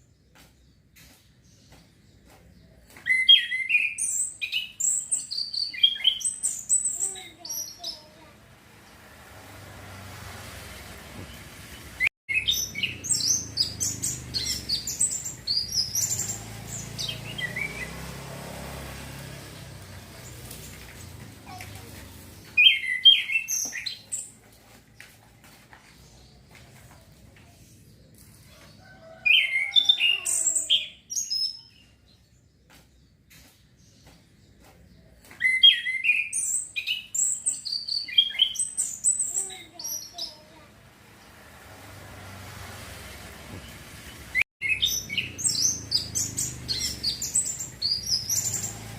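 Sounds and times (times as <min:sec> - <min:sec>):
thrush singing whistled notes: 0:11.8 - 0:18.2, 0:44.6 - 0:48.9.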